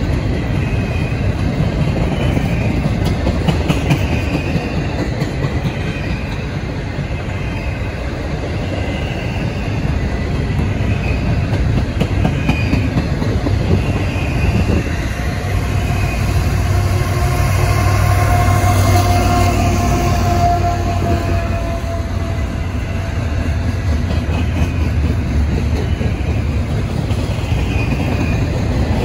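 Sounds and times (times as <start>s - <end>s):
locomotive engine hum: 7.9s - 29.0s.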